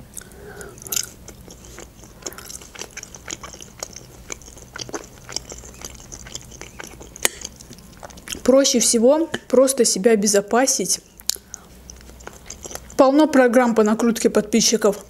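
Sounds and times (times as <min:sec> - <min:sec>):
person chewing food: 0:00.0 - 0:09.6, 0:10.9 - 0:13.2.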